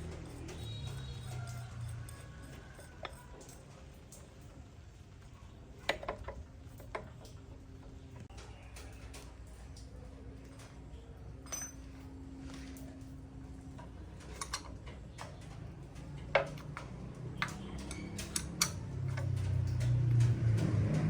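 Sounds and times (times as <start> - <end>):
light metal clicks and taps: 13.7 - 21.0.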